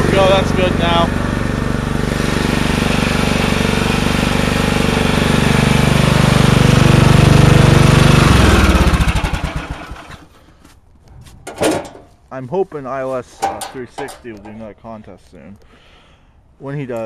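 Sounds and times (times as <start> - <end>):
engine chugging to a stop: 0.0 - 10.3
small engine running: 0.0 - 10.3.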